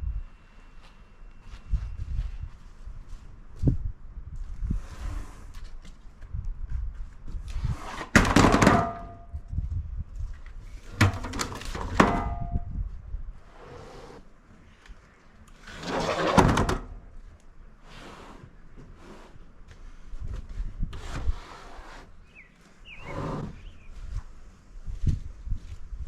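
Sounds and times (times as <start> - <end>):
heavy thunks and knocks: 8.2 - 9.3.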